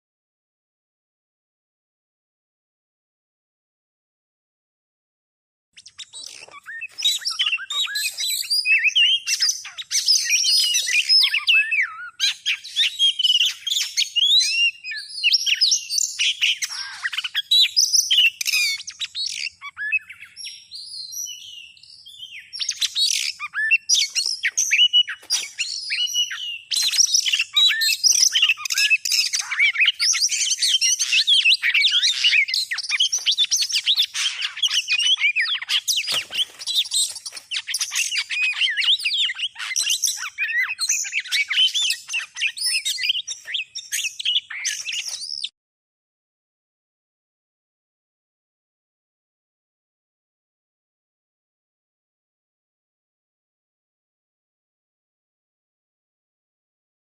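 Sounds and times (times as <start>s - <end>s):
bird singing whistles and chirps: 5.8s - 45.5s.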